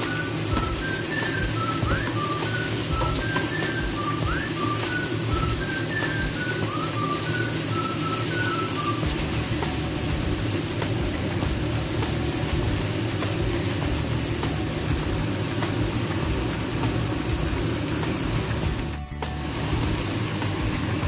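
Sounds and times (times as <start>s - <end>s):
food sizzling in a pot: 0.0s - 21.0s
low steady rumble: 8.4s - 21.0s.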